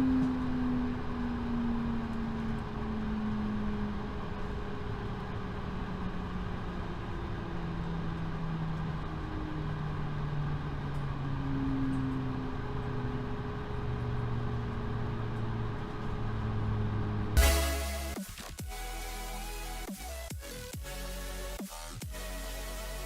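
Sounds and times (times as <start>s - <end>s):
low engine hums: 0.0s - 23.0s.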